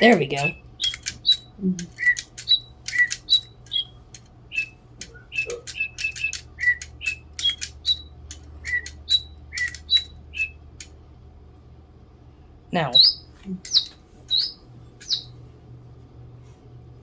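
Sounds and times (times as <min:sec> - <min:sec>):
electronic toy birds chirping: 0:00.0 - 0:10.9, 0:12.8 - 0:15.4.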